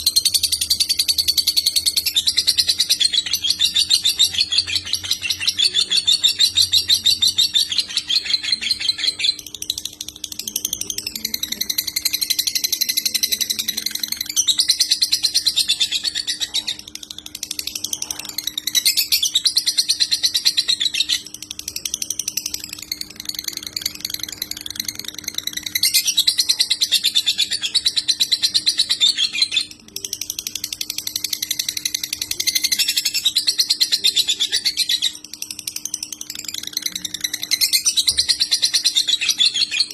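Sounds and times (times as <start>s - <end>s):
faint steady hum: 0.0s - 39.9s
lovebird chattering song: 0.0s - 39.9s.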